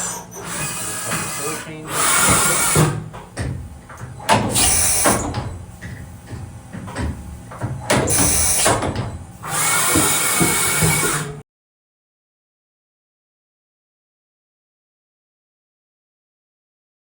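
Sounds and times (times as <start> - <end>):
tool changer mechanical clunks: 0.0 - 11.4
low machine rumble: 0.4 - 9.8.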